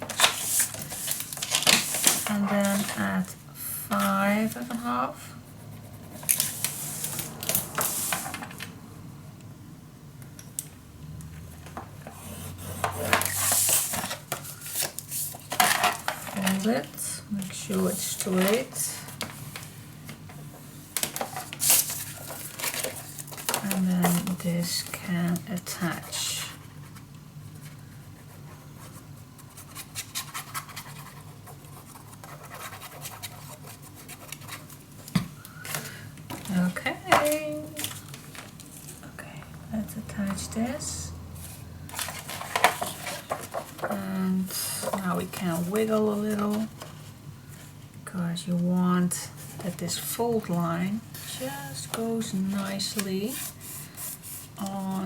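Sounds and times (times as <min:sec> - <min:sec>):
cardstock scratching and rustling: 0:00.0 - 0:03.3, 0:12.0 - 0:19.7, 0:21.0 - 0:35.0, 0:41.4 - 0:47.0, 0:51.1 - 0:55.0
low steady hum: 0:00.0 - 0:55.0
tool scraping along paper: 0:51.1 - 0:55.0.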